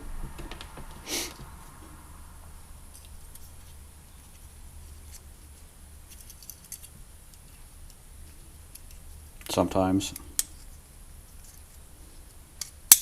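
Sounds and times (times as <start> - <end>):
steady low hum: 0.0 - 13.0
small parts clicking and tapping: 6.1 - 8.0.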